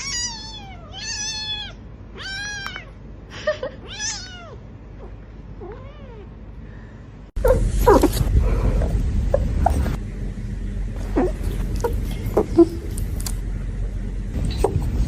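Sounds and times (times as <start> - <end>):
kitten meowing: 0.0 - 2.9, 3.8 - 4.6.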